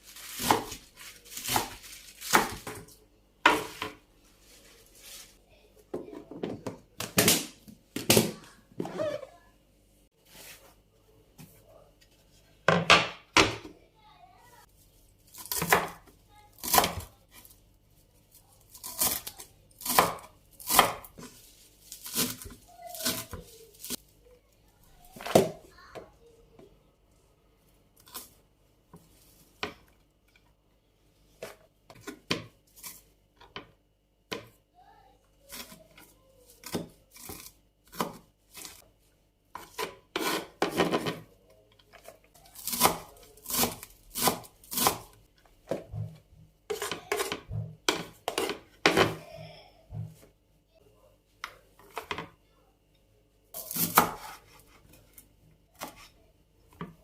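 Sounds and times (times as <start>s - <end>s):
knife cutting on cutting board: 53.6s - 54.8s.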